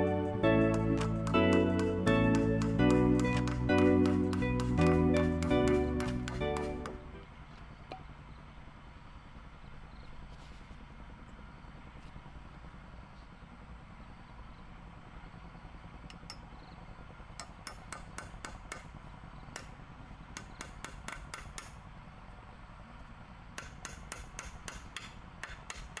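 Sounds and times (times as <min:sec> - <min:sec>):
sharp knocks: 0:00.7 - 0:07.0, 0:17.4 - 0:21.8, 0:23.6 - 0:26.0.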